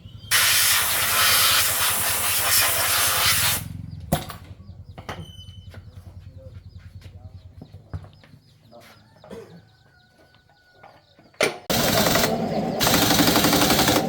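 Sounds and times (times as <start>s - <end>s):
rattling power tool: 11.7s - 14.0s.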